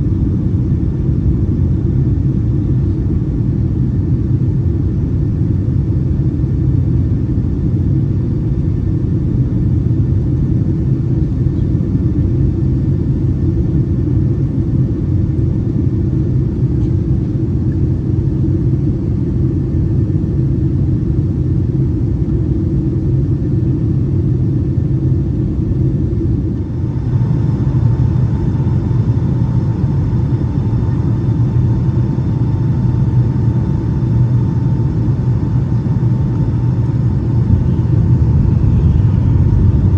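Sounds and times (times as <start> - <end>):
airliner cabin rumble: 0.0 - 39.9
steady high whine: 0.0 - 39.9.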